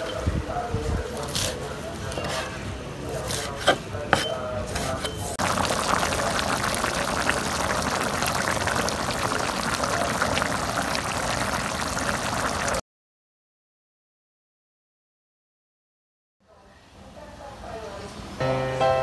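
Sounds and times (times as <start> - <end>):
stew bubbling in a pan: 5.4 - 12.8.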